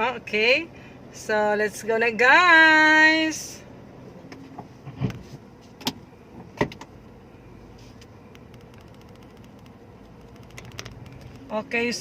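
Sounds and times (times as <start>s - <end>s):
car engine idling: 0.0s - 12.0s
sharp clicks: 8.3s - 11.6s.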